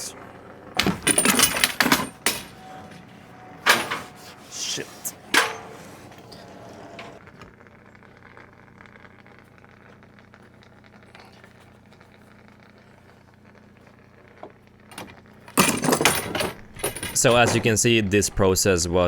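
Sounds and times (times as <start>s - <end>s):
light crackling: 2.5s - 15.6s.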